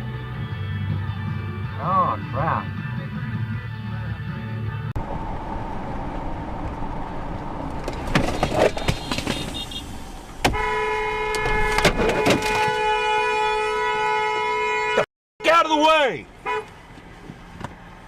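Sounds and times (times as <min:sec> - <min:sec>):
car road and engine noise: 0:00.0 - 0:18.0
car horn held down: 0:10.4 - 0:13.4.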